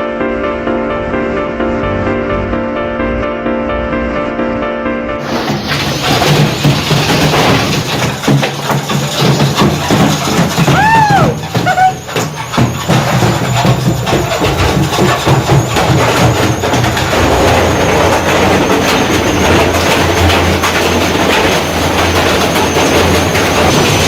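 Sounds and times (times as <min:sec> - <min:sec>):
washing machine banging with stone: 0:05.2 - 0:24.0.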